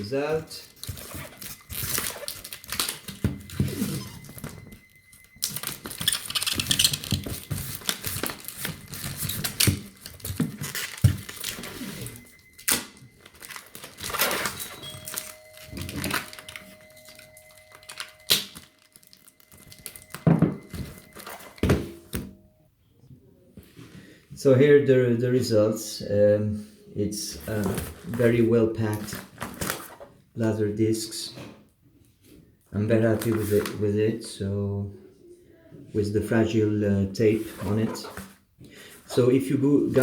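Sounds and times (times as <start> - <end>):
bubble wrap and cardboard crinkling: 0.0 - 22.2, 27.4 - 30.2
packing tape pulled and torn: 0.8 - 3.5, 5.4 - 20.2.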